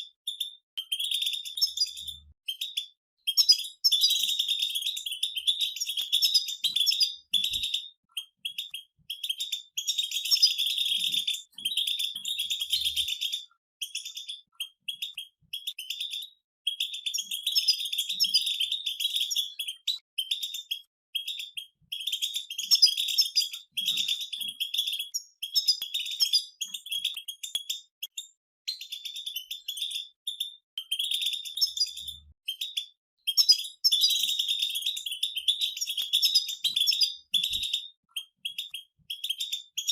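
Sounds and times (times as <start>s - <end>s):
goldfinches twittering: 0.3s - 27.5s.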